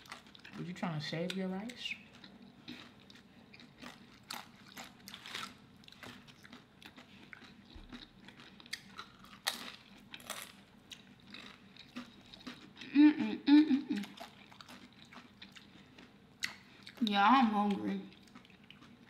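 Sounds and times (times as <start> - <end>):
food being chewed: 0.0 - 13.0, 13.9 - 19.0
chips crunching: 2.1 - 12.7.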